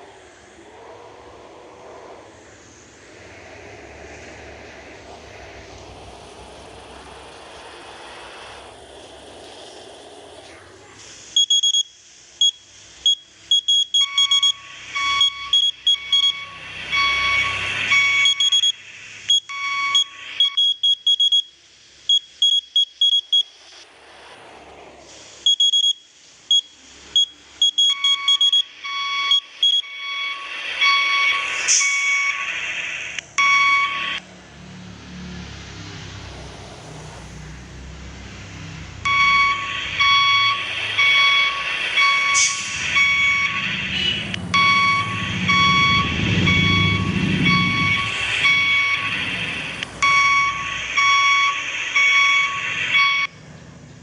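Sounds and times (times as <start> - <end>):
quick high electronic beeps: 11.4 - 21.4, 39.1 - 49.2, 50.0 - 53.3.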